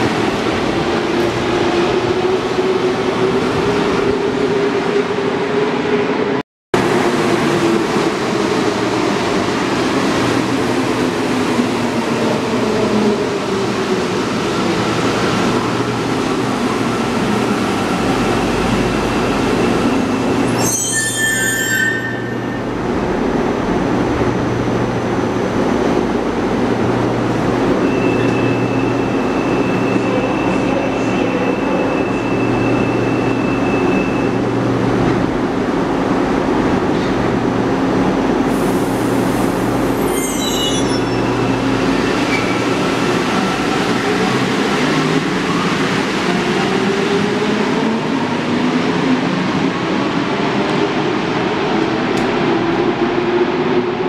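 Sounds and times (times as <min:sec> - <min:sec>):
metro train running rumble: 0:00.0 - 0:54.0
high-pitched squeals: 0:19.1 - 0:22.7, 0:40.0 - 0:41.6.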